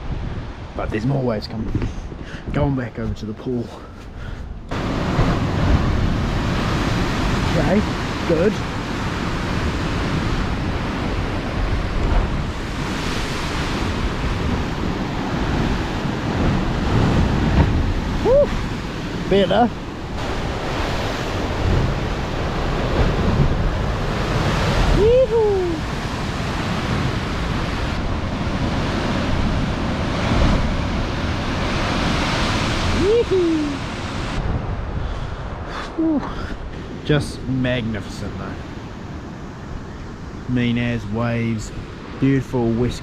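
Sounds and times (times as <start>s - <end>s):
ocean surf washing: 0.0s - 43.0s
wind buffeting microphone: 4.5s - 37.5s.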